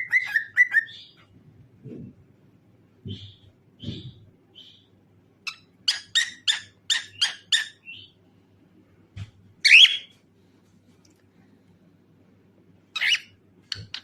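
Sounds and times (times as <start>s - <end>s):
cockatiel chirping: 0.0s - 1.2s, 5.5s - 8.1s, 9.6s - 10.1s, 13.0s - 14.0s.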